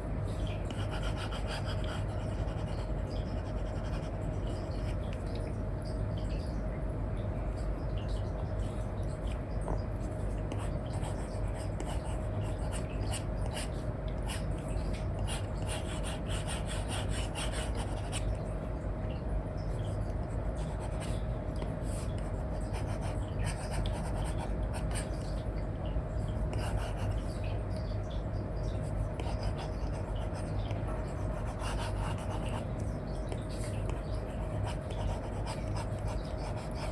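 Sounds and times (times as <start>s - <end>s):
faint hum: 0.0s - 36.9s
stylus scratching and tapping on screen: 0.7s - 5.4s, 33.3s - 36.9s.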